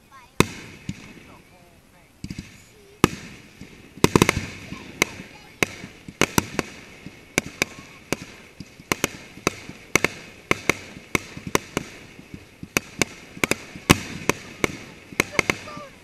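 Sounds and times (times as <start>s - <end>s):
fireworks bangs: 0.0s - 16.0s
steady hiss: 0.0s - 16.0s.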